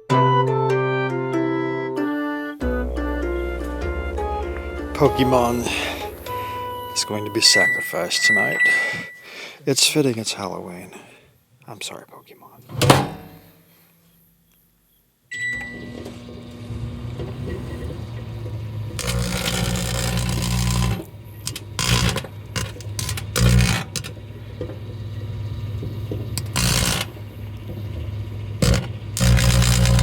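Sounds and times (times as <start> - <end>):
microwave humming: 2.6 - 9.4, 15.3 - 30.0
microwave oven beep: 5.2 - 9.3, 15.3 - 18.4, 22.9 - 25.8, 26.4 - 27.2
electrical arcing crackle: 18.7 - 30.0.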